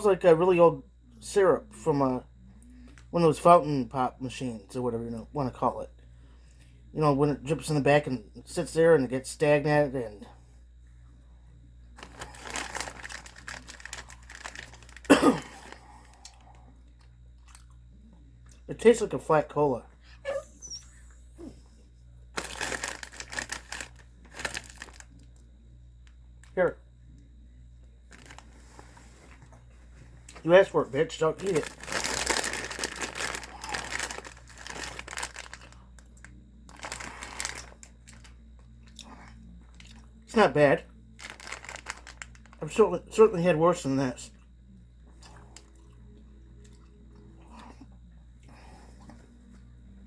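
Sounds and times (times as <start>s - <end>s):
plastic bag crinkling: 12.0s - 16.1s, 22.3s - 25.3s, 28.1s - 28.9s, 30.3s - 36.1s, 36.7s - 38.4s, 41.2s - 42.8s.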